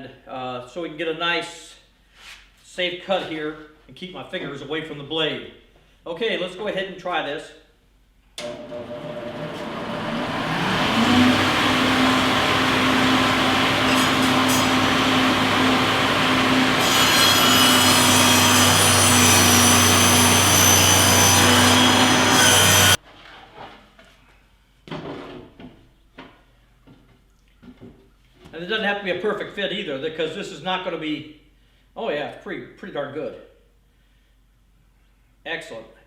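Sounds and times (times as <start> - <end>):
electric saw running: 8.4 - 23.0
saw cutting wood: 8.4 - 23.0.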